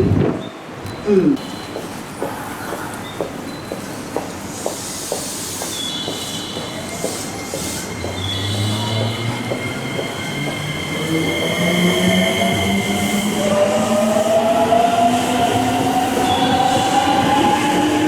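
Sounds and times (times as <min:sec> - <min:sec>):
train wheels clicking over joints: 0:02.2 - 0:12.3
high wheel squeal: 0:05.7 - 0:12.8.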